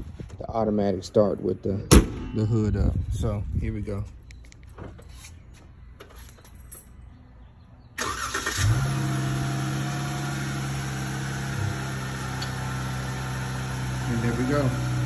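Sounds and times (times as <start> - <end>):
car engine starting and idling: 8.0 - 15.0.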